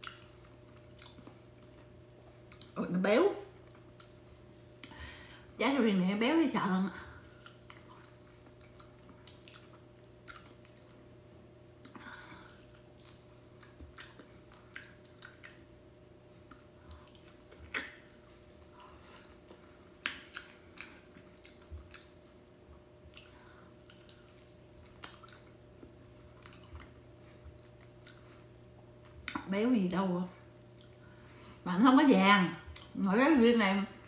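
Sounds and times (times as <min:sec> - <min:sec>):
wet chewing mouth clicks: 0:00.0 - 0:02.8, 0:03.7 - 0:05.0, 0:07.3 - 0:11.1, 0:11.8 - 0:15.7, 0:16.4 - 0:22.2, 0:23.0 - 0:29.5, 0:30.5 - 0:31.2
faint steady hum: 0:00.0 - 0:34.0.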